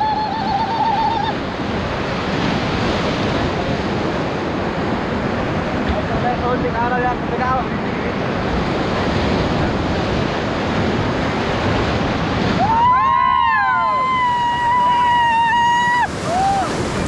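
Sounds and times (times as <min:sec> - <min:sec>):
white water rushing: 0:00.0 - 0:17.0
person yelling: 0:12.6 - 0:16.8
people whooping: 0:12.6 - 0:16.9.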